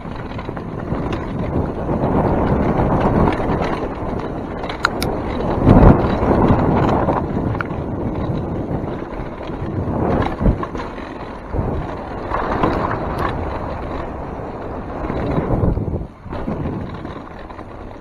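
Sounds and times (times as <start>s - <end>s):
bike tyres rolling on wet trail: 0.0s - 18.0s
wind on microphone: 0.0s - 18.0s.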